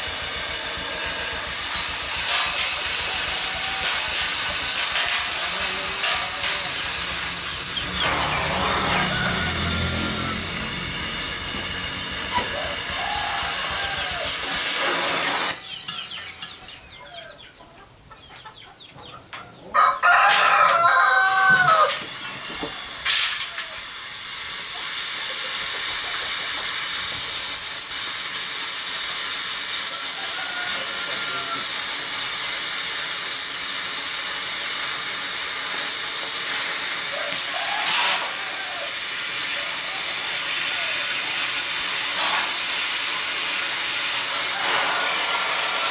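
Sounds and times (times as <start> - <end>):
cutting torch hissing: 0.0 - 15.8, 20.6 - 45.9
rooster crowing: 8.1 - 14.6, 19.7 - 22.1, 29.9 - 32.0, 37.1 - 41.1.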